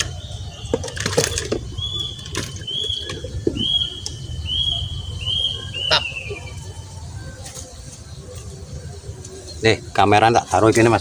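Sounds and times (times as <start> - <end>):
bird calling high note: 1.7 - 7.0.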